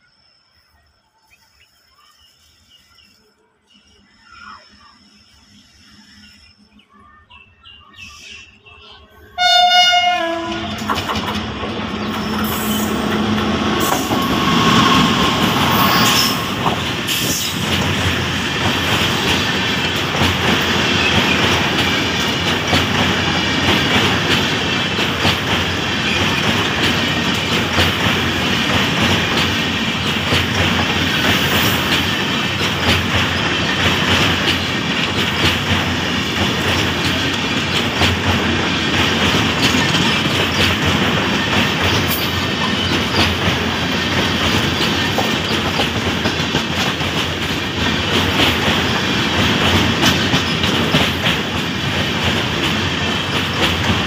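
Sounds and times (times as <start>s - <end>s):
train wheels rushing on rail: 0.0s - 54.0s
locomotive horn blast: 9.4s - 10.9s.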